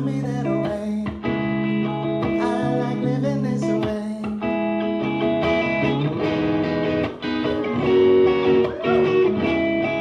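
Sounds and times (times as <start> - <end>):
guitar chords ringing: 0.0 - 10.0.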